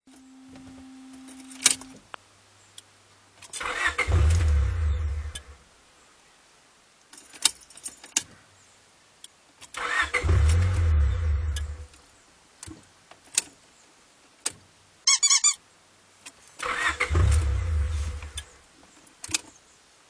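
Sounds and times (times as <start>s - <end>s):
starter cranking engine: 16.6s - 18.4s.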